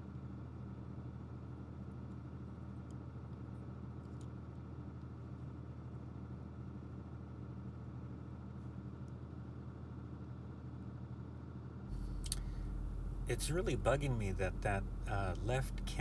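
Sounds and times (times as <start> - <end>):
faint light clicks: 11.9 - 16.0
low mechanical hum: 11.9 - 16.0.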